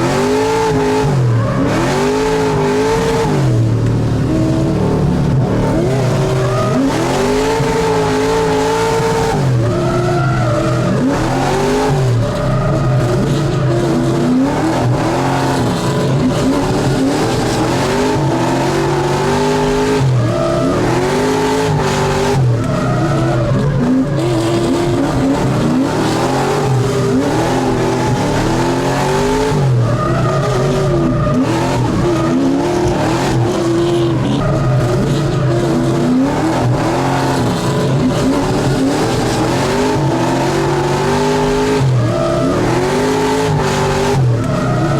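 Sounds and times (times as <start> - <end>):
car engine revving hard: 0.0 - 44.9
tyres squealing: 5.3 - 35.6.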